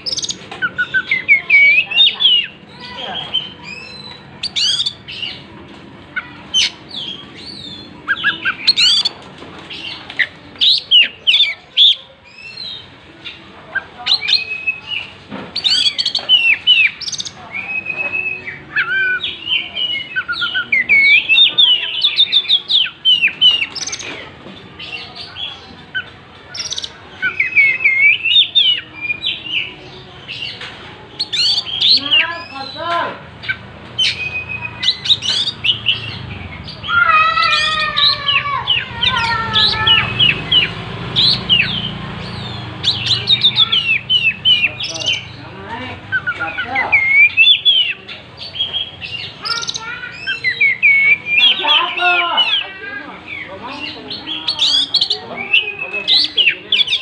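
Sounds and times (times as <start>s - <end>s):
bird singing whistles and trills: 0.0s - 5.4s, 6.6s - 9.2s, 14.0s - 24.2s, 24.8s - 30.6s, 31.2s - 32.6s, 33.4s - 36.9s, 37.5s - 45.3s, 46.1s - 52.6s.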